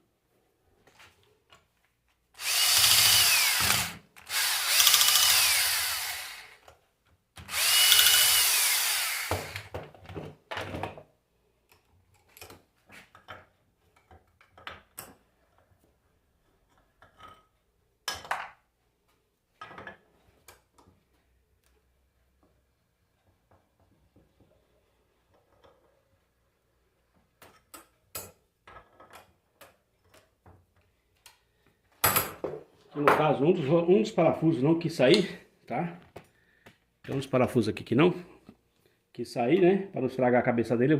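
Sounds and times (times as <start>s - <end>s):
electric drill whining: 2.4s - 6.7s, 7.4s - 9.7s.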